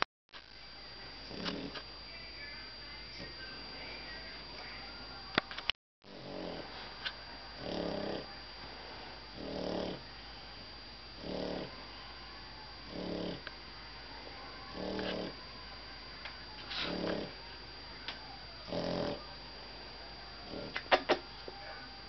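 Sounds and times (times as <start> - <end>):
dog snoring: 1.2 - 1.8, 6.0 - 6.8, 7.6 - 8.4, 9.3 - 10.1, 11.2 - 11.8, 12.8 - 13.5, 14.7 - 15.4, 16.7 - 17.4, 18.6 - 19.3, 20.4 - 21.2.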